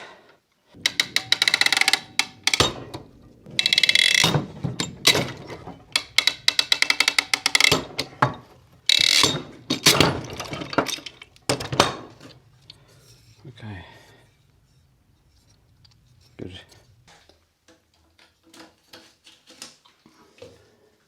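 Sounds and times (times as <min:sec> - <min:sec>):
fastener ratcheting clicks: 0:00.8 - 0:12.2.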